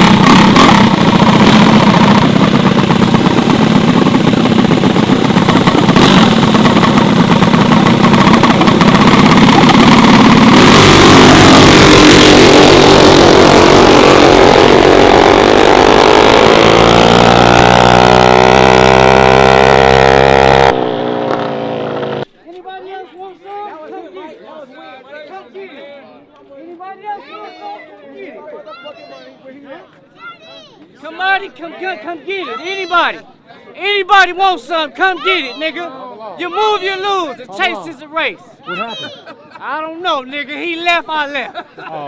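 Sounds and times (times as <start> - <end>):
mini bike engines running hard: 0.0 - 22.3.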